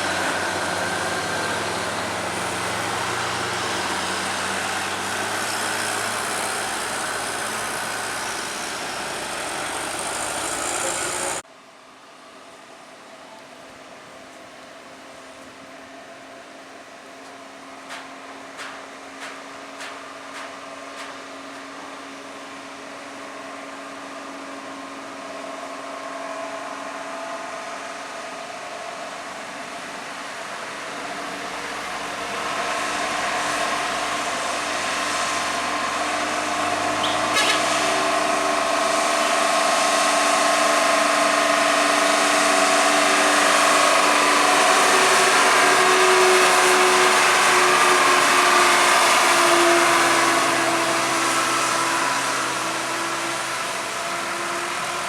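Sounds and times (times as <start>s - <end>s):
vehicle approaching: 0.0s - 11.4s, 24.4s - 55.0s.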